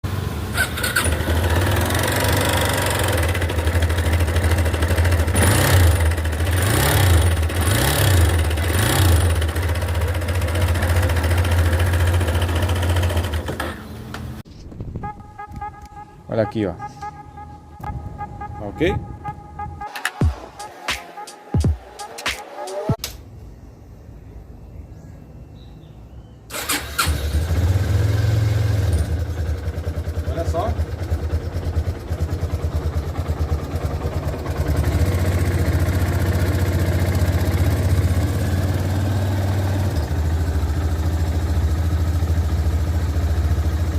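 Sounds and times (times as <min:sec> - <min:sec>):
motorcycle engine idling and revving: 0:00.0 - 0:14.4, 0:26.5 - 0:43.9.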